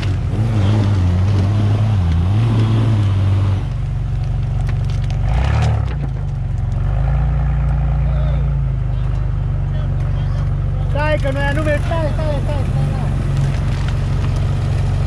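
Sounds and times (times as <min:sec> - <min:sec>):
sharp cracks: 0:00.0 - 0:07.9, 0:11.0 - 0:15.0
off-road vehicle engine revving: 0:00.0 - 0:15.0.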